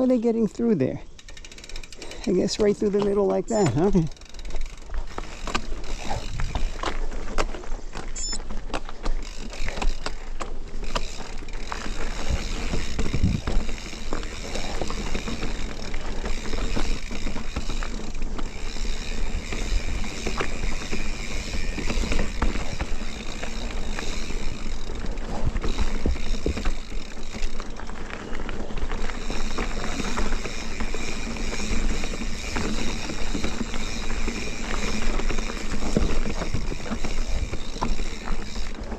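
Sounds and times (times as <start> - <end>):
bike clicking and rattling: 0.0 - 38.9
bike tyres rumbling on dirt: 0.0 - 38.9.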